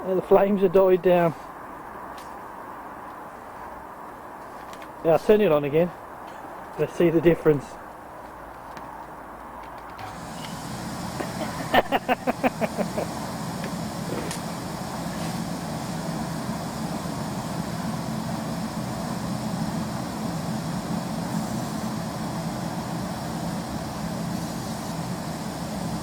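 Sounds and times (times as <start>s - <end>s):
forced air rushing into fire: 10.0s - 26.0s.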